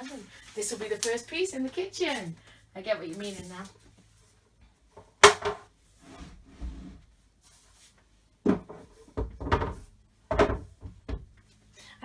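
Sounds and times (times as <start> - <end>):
scraping and rubbing: 5.9 - 8.0
sharp knocks on furniture panels: 8.4 - 11.4.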